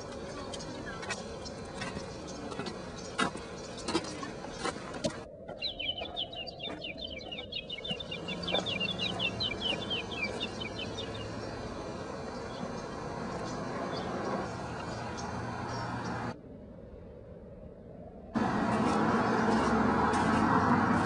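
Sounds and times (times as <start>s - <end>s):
bird chirping rapidly: 5.6s - 16.3s.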